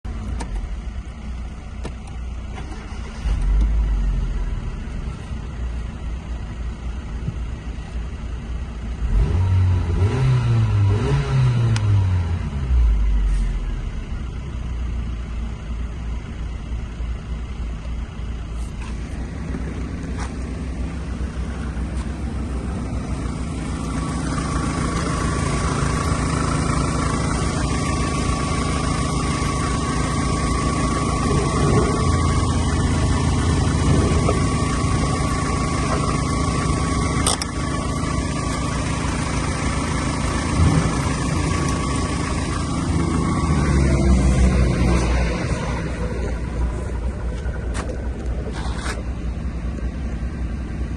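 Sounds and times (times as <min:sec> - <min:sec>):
car engine revving and idling: 0:00.0 - 0:50.9
steady whine: 0:12.2 - 0:50.9.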